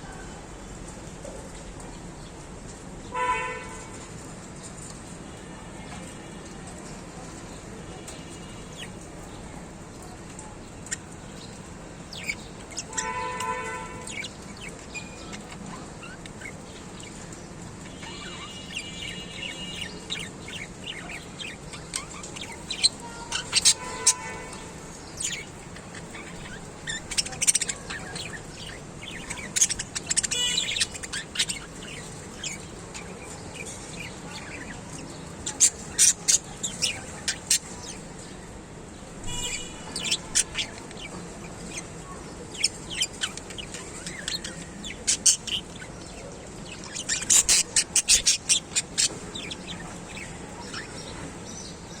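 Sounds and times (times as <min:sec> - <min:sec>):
parrot chirps and squawks: 0:12.1 - 0:17.2, 0:17.9 - 0:34.8, 0:35.4 - 0:38.0, 0:39.3 - 0:41.9, 0:42.5 - 0:51.2.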